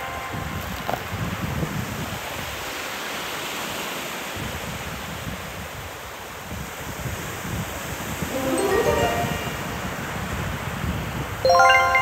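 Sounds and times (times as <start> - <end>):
wind buffeting microphone: 0.3 - 2.7.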